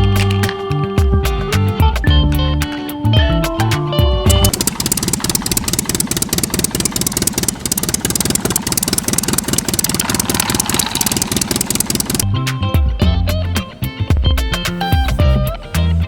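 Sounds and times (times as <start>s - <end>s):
small engine puttering: 4.3s - 12.2s.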